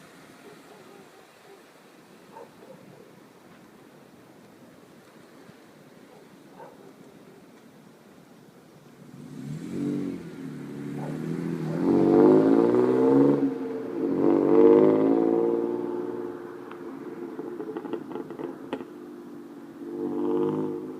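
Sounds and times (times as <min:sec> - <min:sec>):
car engine idling and revving: 0:08.9 - 0:20.9.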